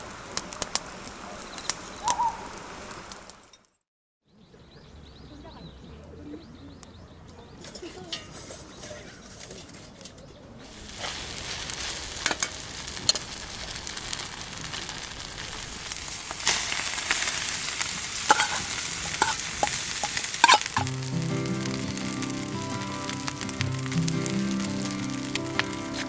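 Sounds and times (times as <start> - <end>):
food sizzling in a pan: 0.0 - 3.6, 10.6 - 26.0
utensil clicking against pan: 18.3 - 20.9
background music: 20.8 - 26.0.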